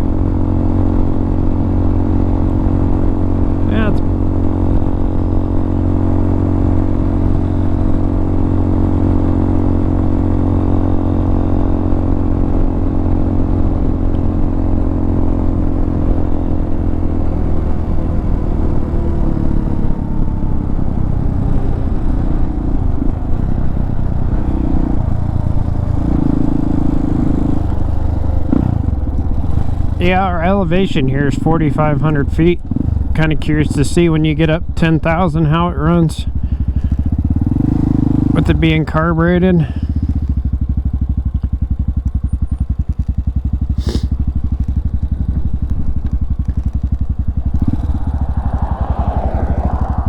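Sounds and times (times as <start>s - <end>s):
motorcycle engine running: 0.0s - 50.0s
wind rumble on microphone: 41.3s - 50.0s.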